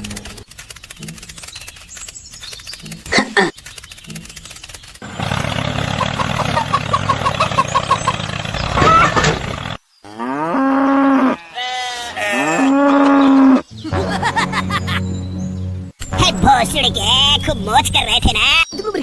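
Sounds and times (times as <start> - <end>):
cow mooing: 10.0 - 13.7.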